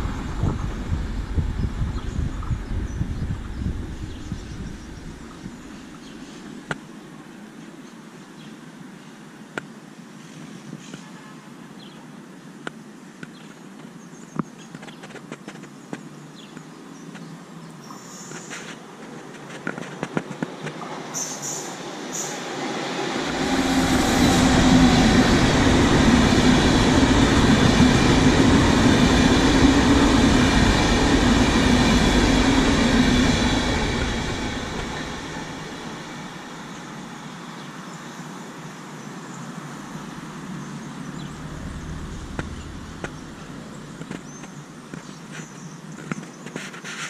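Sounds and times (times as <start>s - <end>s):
train wheels rumbling on track: 0.0s - 6.8s, 18.4s - 37.4s, 39.5s - 46.3s
low hum: 39.8s - 44.8s.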